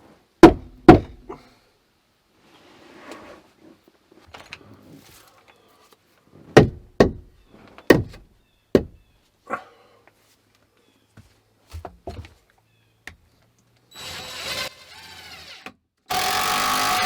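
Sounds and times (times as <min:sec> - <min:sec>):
tool knocking on wood: 0:00.4 - 0:01.2, 0:06.6 - 0:07.3, 0:07.9 - 0:08.2, 0:08.8 - 0:09.0.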